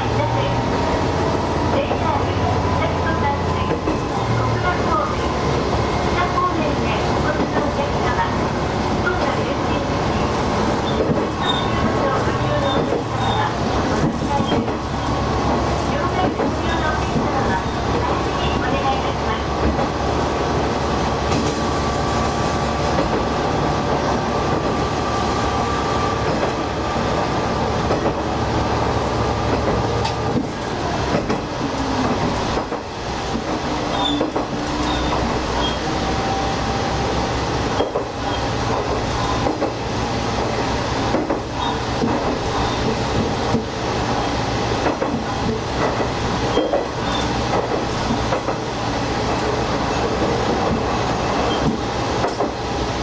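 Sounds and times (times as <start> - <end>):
wheel-on-rail noise: 7.3 - 14.8, 22.9 - 32.8.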